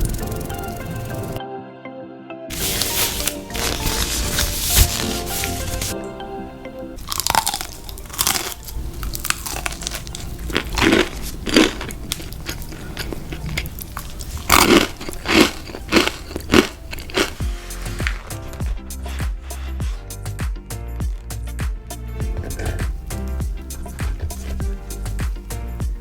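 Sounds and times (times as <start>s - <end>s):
music intro: 0.0s - 11.0s, 14.4s - 26.0s
crunchy food bites: 7.0s - 18.7s
chewing: 7.0s - 20.0s, 22.3s - 25.5s.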